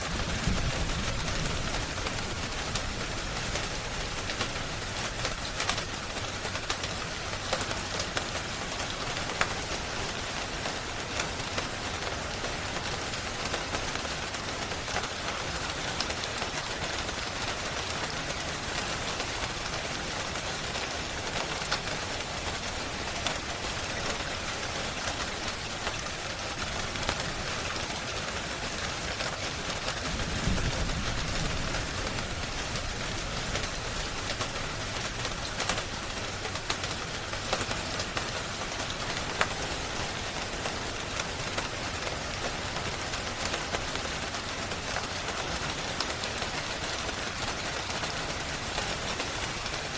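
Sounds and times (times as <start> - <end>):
steady rain falling: 0.0 - 49.9
wood fire crackling: 19.2 - 45.4.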